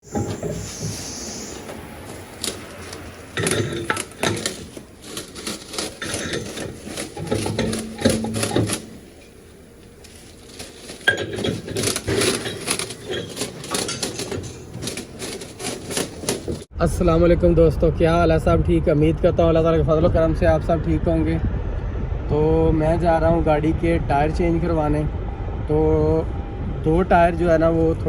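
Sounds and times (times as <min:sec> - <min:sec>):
metal objects clinking: 0:02.4 - 0:16.6.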